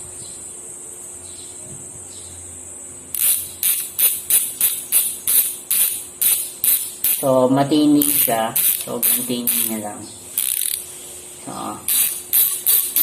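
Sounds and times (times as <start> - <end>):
bicycle freehub ratcheting clicks: 3.1 - 7.3, 8.0 - 9.8, 10.4 - 10.9, 11.9 - 13.0.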